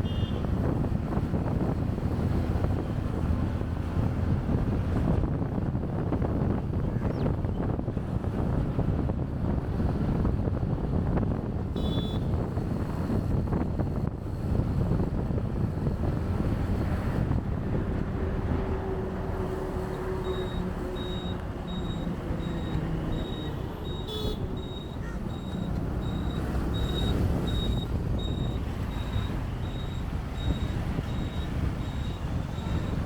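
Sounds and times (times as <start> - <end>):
motorcycle engine and road noise: 0.0 - 33.0
surrounding traffic: 0.0 - 33.0
high electronic beep: 20.3 - 32.7.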